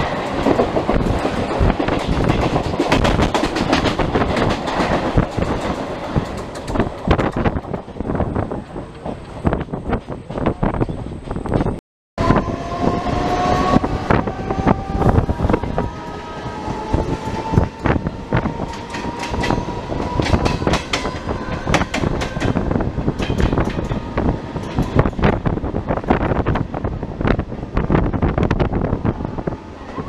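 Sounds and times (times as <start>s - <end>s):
train wheels clattering over rail joints: 0.0s - 8.2s, 15.6s - 26.9s
train rumble: 0.0s - 30.0s.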